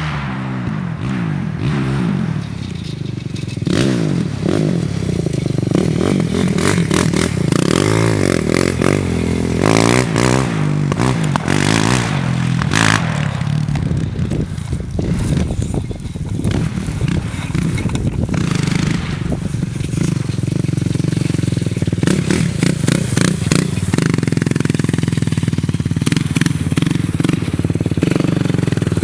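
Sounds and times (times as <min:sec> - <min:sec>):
atv engine revving: 0:00.0 - 0:29.0
scraping and clattering: 0:02.4 - 0:08.6, 0:12.7 - 0:29.0.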